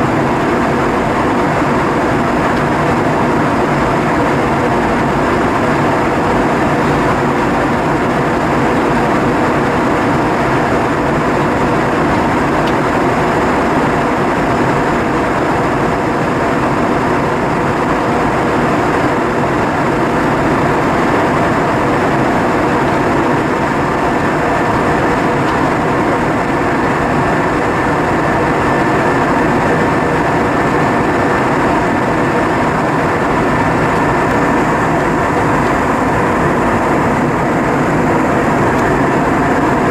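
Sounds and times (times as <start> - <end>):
airflow and engine drone: 0.0 - 39.9.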